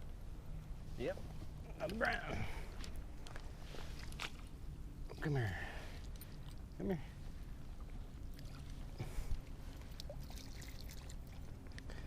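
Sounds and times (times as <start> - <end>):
water trickling and splashing: 7.4 - 12.0.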